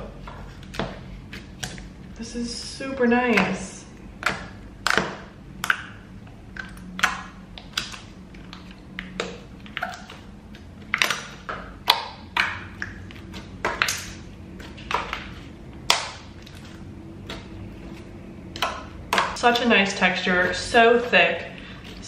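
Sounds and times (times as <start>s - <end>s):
clay slime popping and clicking: 4.2s - 16.6s, 18.5s - 19.7s.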